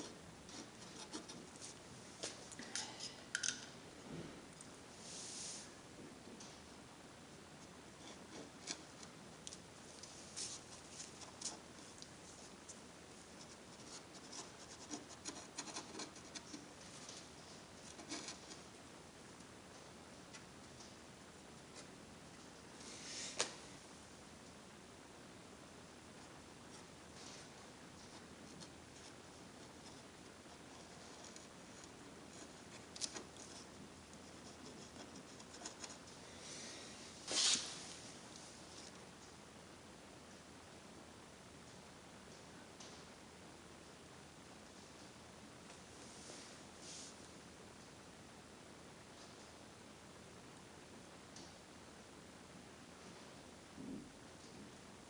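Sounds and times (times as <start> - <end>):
light scratching on plastic: 0.0 - 1.8, 8.0 - 18.7, 26.2 - 36.2.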